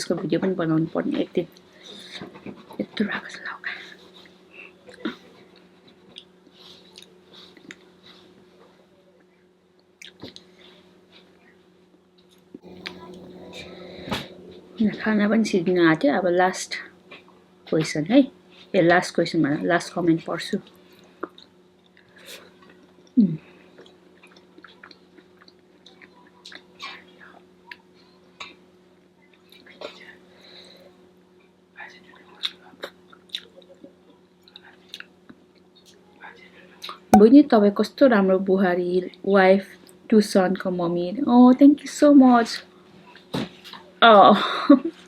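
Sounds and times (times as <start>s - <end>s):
low voice murmur: 12.6s - 15.4s
steady low hum: 12.6s - 17.2s.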